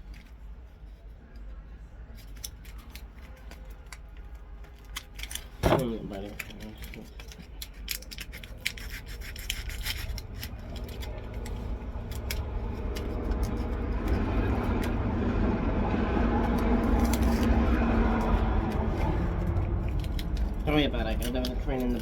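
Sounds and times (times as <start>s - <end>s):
toy cap gun clicks and rubbing: 2.2s - 5.6s, 6.2s - 14.9s
steady hum: 9.2s - 22.0s
passing train rumble: 9.4s - 22.0s.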